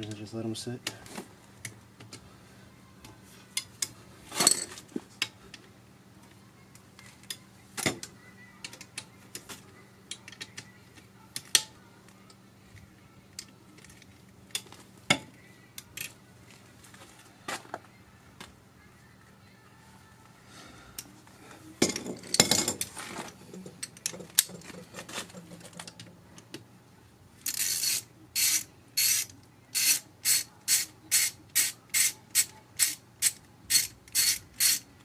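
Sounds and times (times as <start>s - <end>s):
metal tools clinking: 4.3s - 4.8s, 21.8s - 26.1s.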